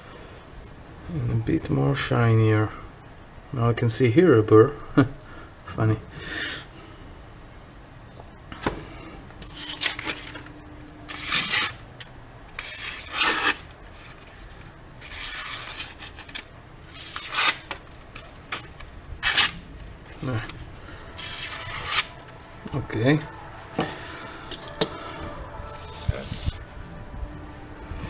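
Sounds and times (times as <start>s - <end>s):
knife rasping on abrasive paper: 12.6s - 14.3s, 15.0s - 17.6s, 21.2s - 22.2s.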